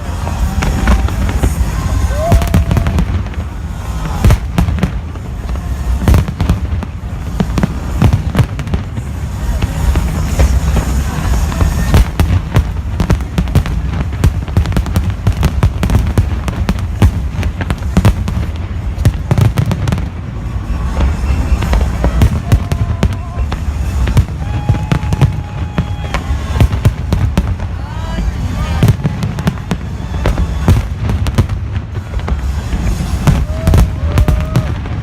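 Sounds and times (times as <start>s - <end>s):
firework whistles: 0.0s - 35.0s
fireworks bangs and crackles: 0.0s - 35.0s.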